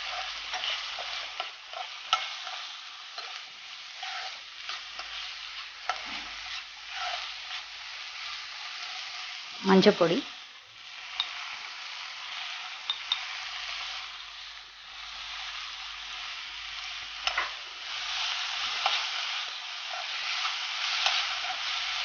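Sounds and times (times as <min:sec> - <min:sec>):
masala sizzling in hot oil: 0:00.0 - 0:22.0
spoon tapping pan: 0:11.1 - 0:11.4, 0:12.8 - 0:13.3, 0:17.2 - 0:17.6.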